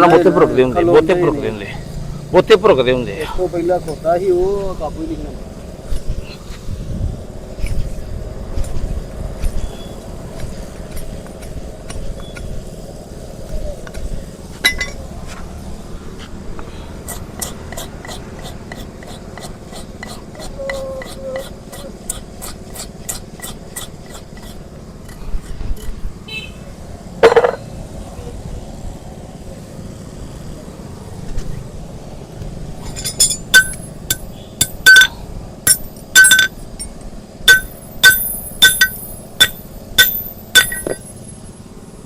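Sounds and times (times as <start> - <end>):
ringing metallic clinks: 14.6 - 15.0, 32.8 - 41.4
light rapid ticking of tools: 16.6 - 26.0, 32.8 - 41.2.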